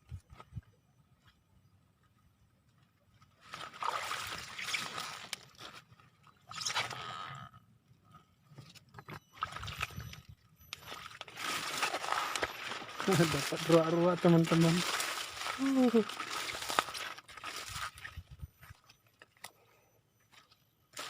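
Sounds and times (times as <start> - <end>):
water splashing and sloshing: 3.2 - 6.9, 9.0 - 18.8.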